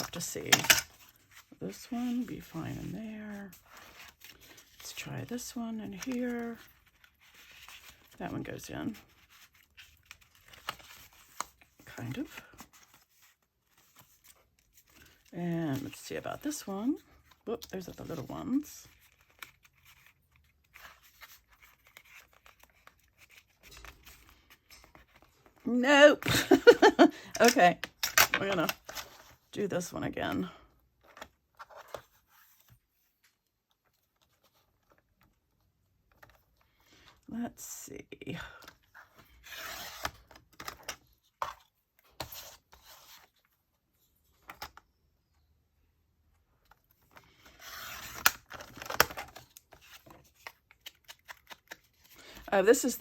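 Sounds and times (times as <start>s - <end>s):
paper and card rustling: 0.0s - 37.2s, 38.4s - 44.8s, 46.6s - 53.0s
paper rustling and clicking: 48.0s - 52.5s.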